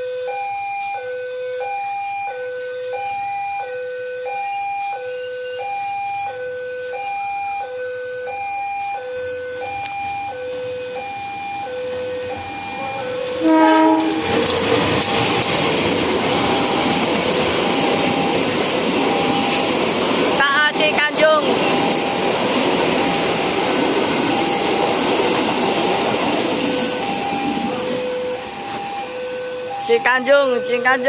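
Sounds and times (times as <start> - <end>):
level-crossing two-tone alarm: 0.0 - 31.0
train rushing rumble: 10.1 - 31.0
train horn: 11.9 - 14.7.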